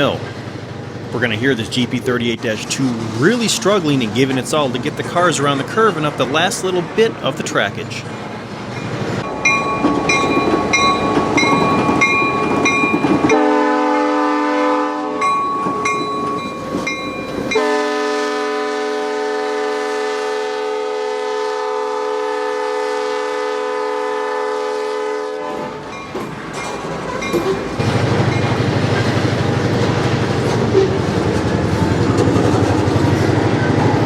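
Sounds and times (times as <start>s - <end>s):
diesel locomotive working: 0.0s - 34.0s
locomotive bell ringing: 1.2s - 13.8s, 14.9s - 18.0s, 25.8s - 29.2s
locomotive horn blast: 13.3s - 15.3s, 17.5s - 26.0s.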